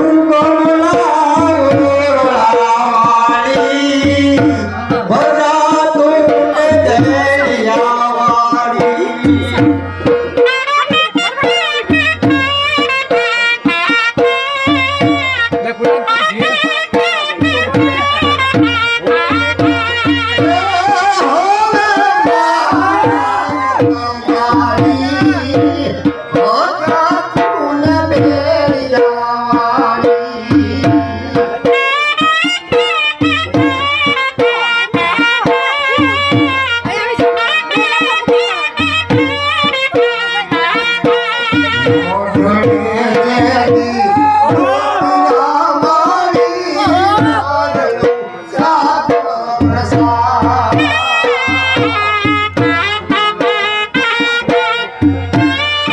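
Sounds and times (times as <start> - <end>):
driving drum beat: 0.0 - 55.9
double-reed pipe folk melody: 8.8 - 18.0, 31.9 - 42.2.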